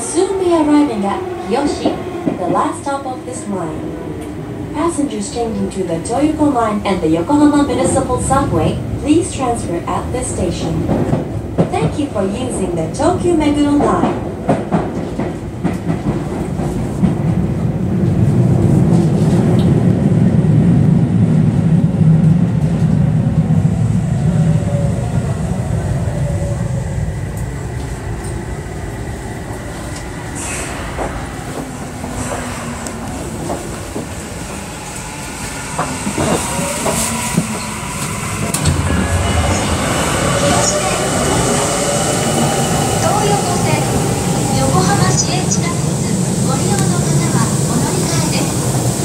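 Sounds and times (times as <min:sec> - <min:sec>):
clacks over track joints: 0:13.8 - 0:17.3.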